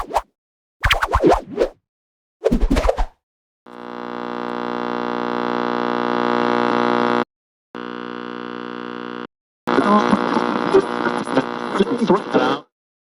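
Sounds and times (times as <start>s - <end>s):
electric hum: 3.8s - 7.2s, 7.8s - 11.8s.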